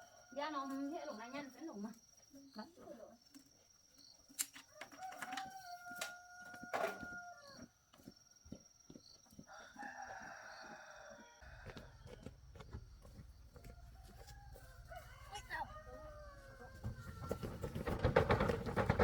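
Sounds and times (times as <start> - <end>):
rooster crowing: 4.7 - 7.7, 9.5 - 17.6.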